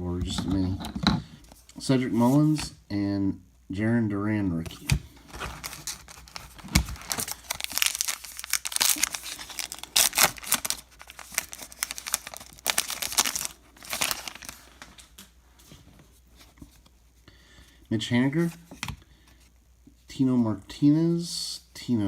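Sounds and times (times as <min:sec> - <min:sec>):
plastic wrapper crinkling and tearing: 0:05.2 - 0:15.2.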